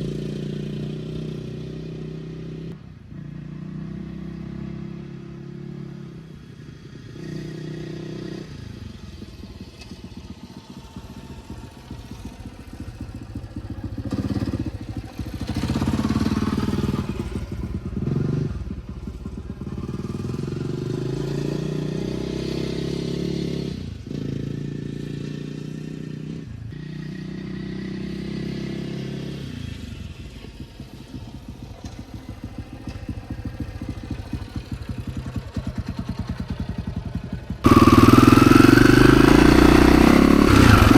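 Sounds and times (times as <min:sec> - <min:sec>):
dirt bike engine revving: 0:10.5 - 0:18.7, 0:37.6 - 0:40.9.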